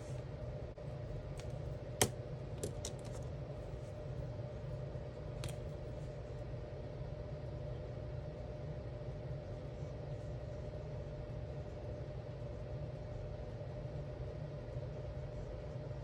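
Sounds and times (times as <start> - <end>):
steady low hum: 0.0 - 16.0
markers clicking and tapping: 1.4 - 3.2.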